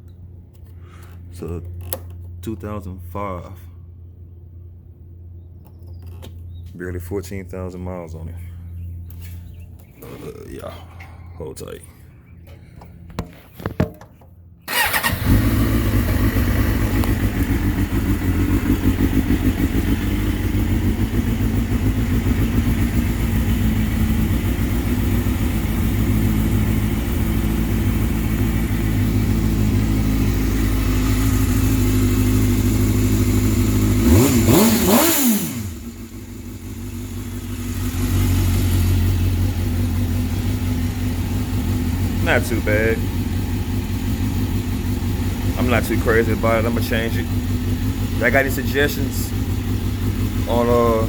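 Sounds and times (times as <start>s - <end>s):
motorcycle engine starting and idling: 11.1s - 51.0s
motorcycle engine revving: 14.7s - 51.0s.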